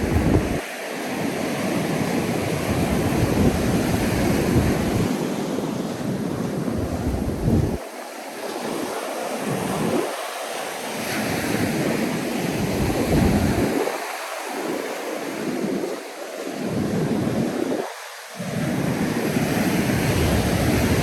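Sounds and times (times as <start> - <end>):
wind on microphone: 0.0 - 8.1, 11.0 - 14.1, 16.6 - 21.0
ocean surf on sand: 0.0 - 21.0.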